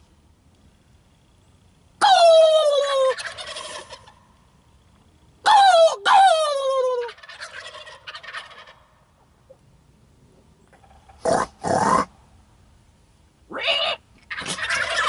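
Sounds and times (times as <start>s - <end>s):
wild turkeys gobbling: 2.0s - 4.3s, 5.4s - 9.6s, 10.7s - 12.1s, 13.5s - 15.0s
turkey call falling in pitch: 13.7s - 15.0s.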